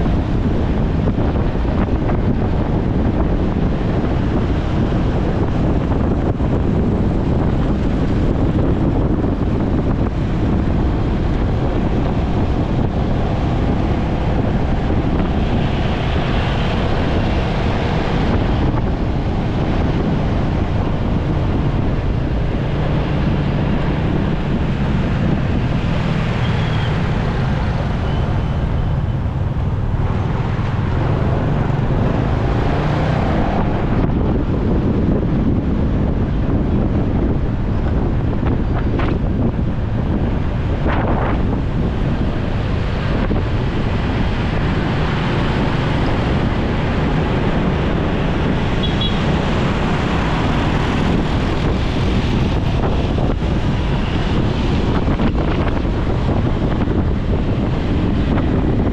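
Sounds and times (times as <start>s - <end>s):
road traffic: 0.0s - 58.9s
wind rushing over microphone: 0.0s - 58.9s.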